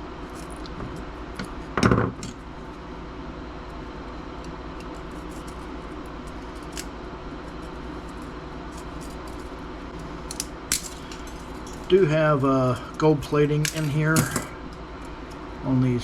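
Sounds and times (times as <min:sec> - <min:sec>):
steady low hum: 0:00.0 - 0:16.0
small metal parts clicking: 0:10.3 - 0:12.0, 0:12.7 - 0:14.5.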